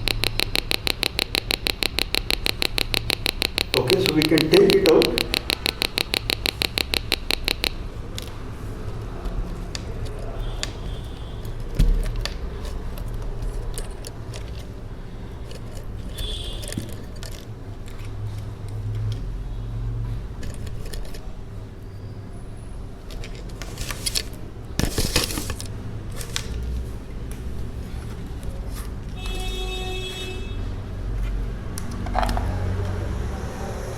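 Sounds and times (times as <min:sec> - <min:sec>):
fast pulsed electronic beep: 0:00.0 - 0:07.7.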